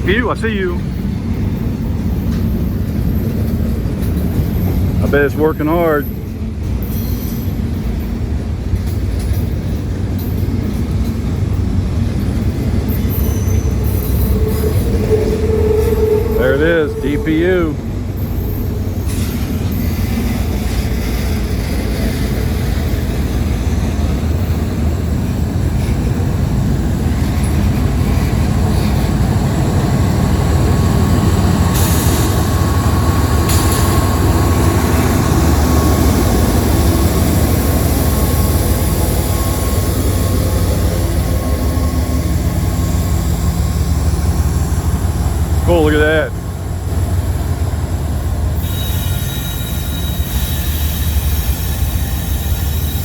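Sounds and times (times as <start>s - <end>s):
freight train rumbling past: 0.0s - 53.0s
thin steady squeal: 12.2s - 20.0s, 27.3s - 46.1s, 47.8s - 53.0s.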